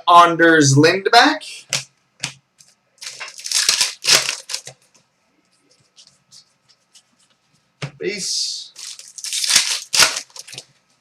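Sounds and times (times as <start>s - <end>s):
cards rustling: 1.7s - 7.3s, 8.8s - 10.7s.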